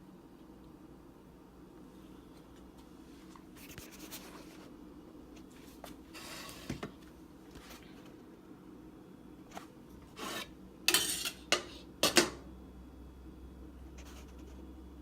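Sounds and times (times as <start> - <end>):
steady low hum: 0.0 - 15.0
kitchen items scraping on counter: 5.6 - 7.0, 9.5 - 11.9.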